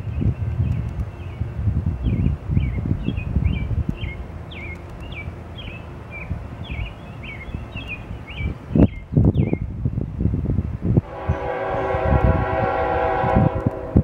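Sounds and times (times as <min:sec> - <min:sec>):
songbird chirping: 0:00.0 - 0:09.7
low outdoor rumble: 0:00.0 - 0:14.0.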